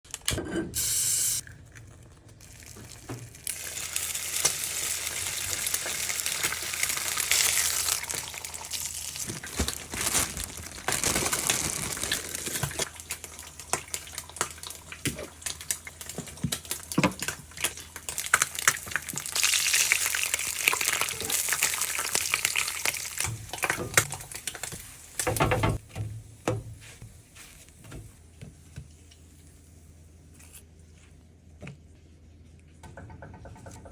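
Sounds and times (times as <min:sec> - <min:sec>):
food sizzling in frying pan: 0:03.3 - 0:09.6, 0:11.3 - 0:25.4.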